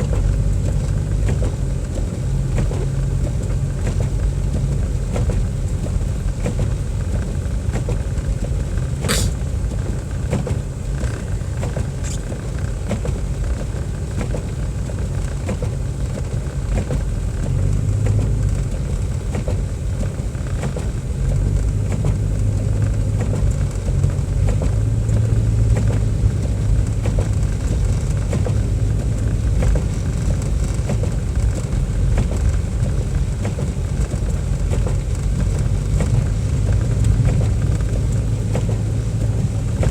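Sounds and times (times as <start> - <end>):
car engine and road noise: 0.0 - 39.9
sharp click: 9.0 - 9.4.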